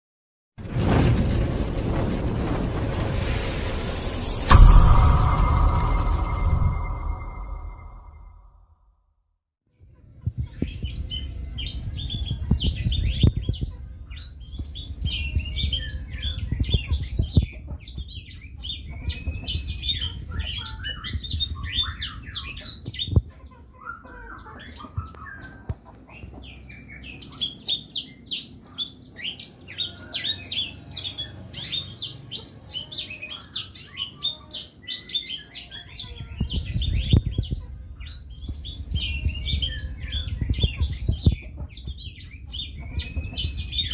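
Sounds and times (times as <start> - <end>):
canary singing high chirps: 26.5 - 43.9.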